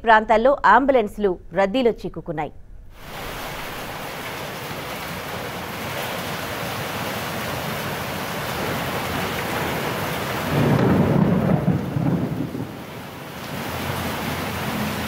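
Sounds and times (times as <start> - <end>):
heavy rain pouring: 3.0 - 15.0
running floodwater: 3.0 - 15.0.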